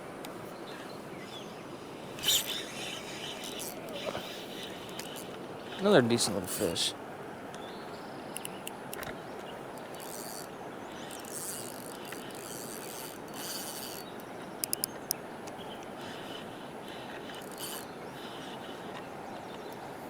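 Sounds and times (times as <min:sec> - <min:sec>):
fishing reel winding: 0:02.2 - 0:06.0, 0:08.3 - 0:09.1, 0:09.8 - 0:15.2, 0:15.8 - 0:18.9
sharp clicks: 0:08.3 - 0:09.2, 0:09.8 - 0:15.9.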